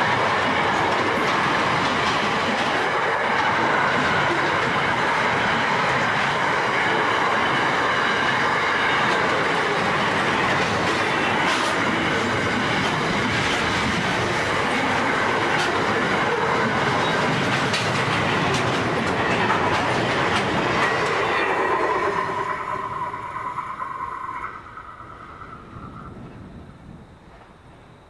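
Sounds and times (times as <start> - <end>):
wheels clicking over rail joints: 0.0 - 22.8
freight train wheel rumble: 0.0 - 28.0.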